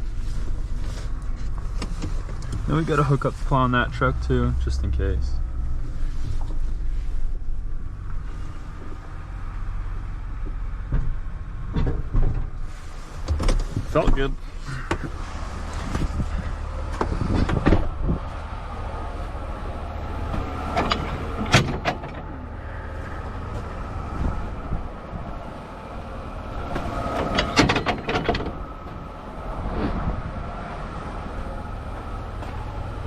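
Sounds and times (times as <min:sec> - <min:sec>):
truck engine idling: 0:00.0 - 0:33.0
metal knocks and clanks: 0:20.2 - 0:22.4, 0:26.6 - 0:29.1.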